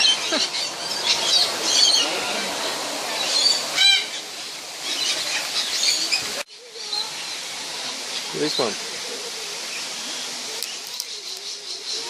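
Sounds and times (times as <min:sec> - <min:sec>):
parrots chattering and screeching: 0:00.0 - 0:07.2.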